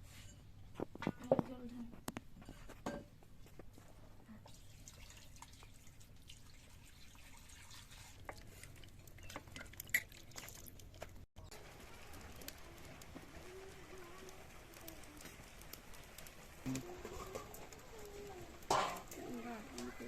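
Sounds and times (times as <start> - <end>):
water clicks and drips: 4.4 - 20.0.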